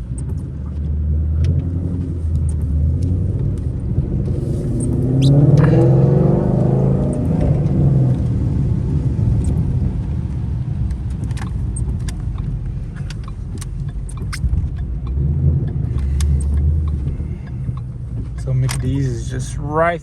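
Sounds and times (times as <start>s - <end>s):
light clicks and ticks: 0.0s - 5.7s, 10.3s - 19.7s
car engine low rumble: 0.0s - 20.0s.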